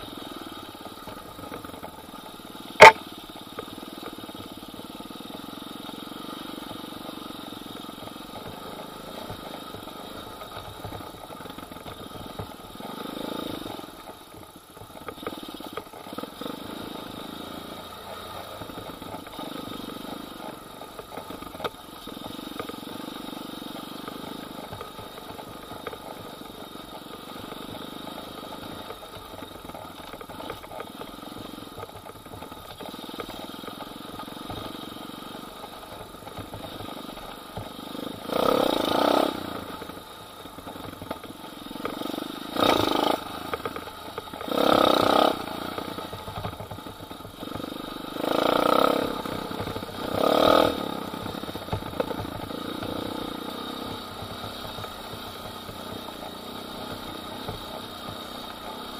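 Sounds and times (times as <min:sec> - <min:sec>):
motorbike engine revving: 0:02.8 - 0:03.0, 0:41.8 - 0:43.5, 0:44.4 - 0:45.9, 0:47.4 - 0:54.0.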